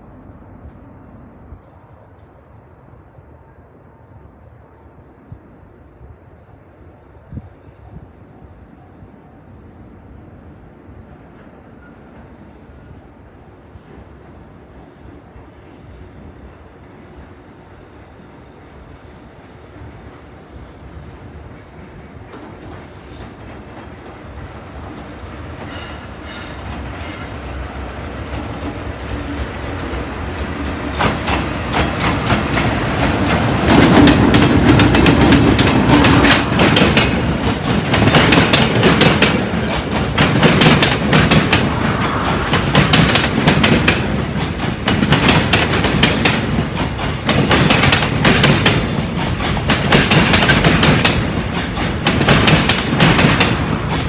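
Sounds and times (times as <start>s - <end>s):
freight train passing: 0.0s - 54.0s
wheels clacking over rail joints: 28.3s - 54.0s.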